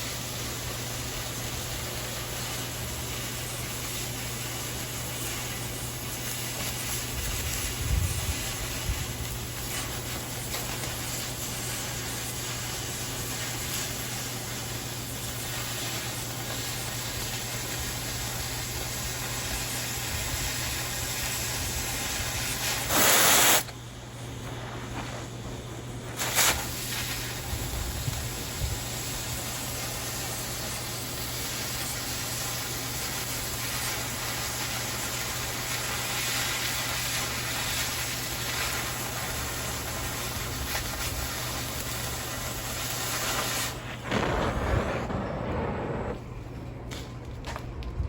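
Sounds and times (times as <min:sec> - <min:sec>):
cutting torch hissing: 0:00.0 - 0:46.4
short rush of torch noise: 0:21.3 - 0:29.0, 0:40.2 - 0:46.6.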